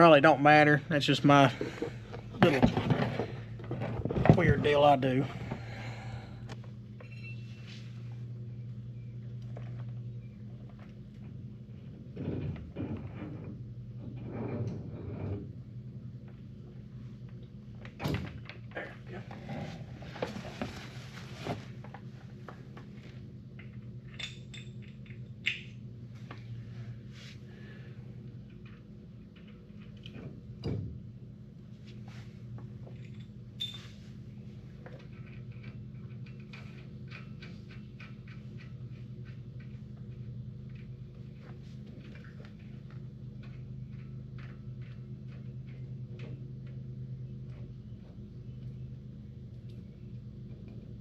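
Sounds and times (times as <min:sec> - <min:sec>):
steady low hum: 0:00.0 - 0:51.0
metal parts clicking and clinking: 0:23.6 - 0:25.8.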